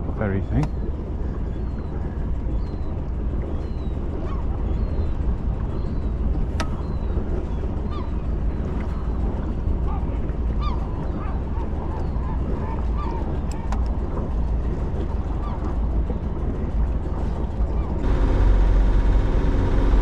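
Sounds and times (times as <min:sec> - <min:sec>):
birds calling: 0:00.0 - 0:13.8
steady low rumble: 0:00.0 - 0:20.0.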